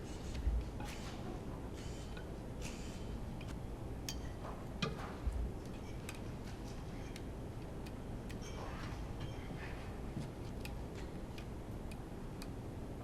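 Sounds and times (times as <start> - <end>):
clicks of hand tools and metal parts: 1.8 - 9.5.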